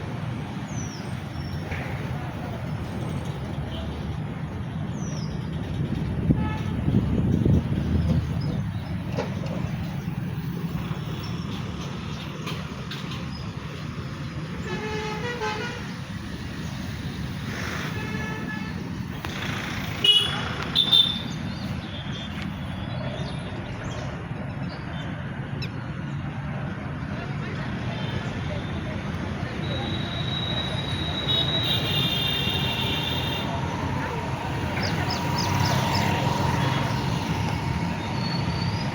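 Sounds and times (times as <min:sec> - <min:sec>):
traffic rumble of engines and tyres: 0:00.0 - 0:38.9
vehicle horns honking: 0:06.2 - 0:07.3, 0:14.6 - 0:16.0, 0:17.9 - 0:18.8, 0:20.0 - 0:21.4, 0:29.6 - 0:37.0.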